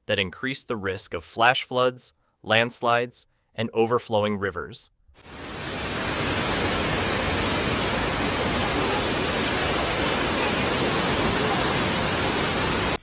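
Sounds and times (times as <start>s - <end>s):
heavy rain rushing: 5.2s - 13.0s.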